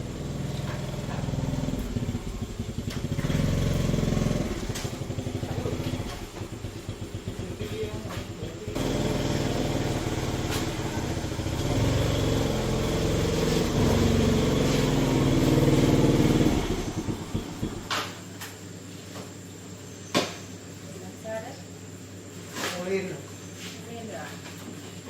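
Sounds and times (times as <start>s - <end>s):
small engine running: 0.0s - 18.0s.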